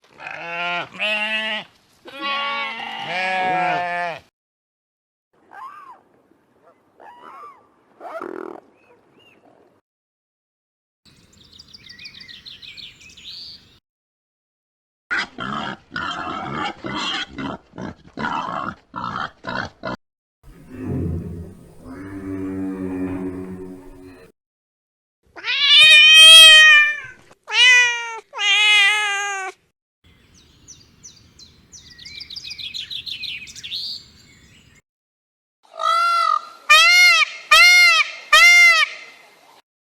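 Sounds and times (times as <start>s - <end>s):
small bird chirping: 11.1s - 13.8s, 30.1s - 34.8s
songbird singing: 11.1s - 13.8s, 30.1s - 34.8s
cat meowing: 25.4s - 29.5s.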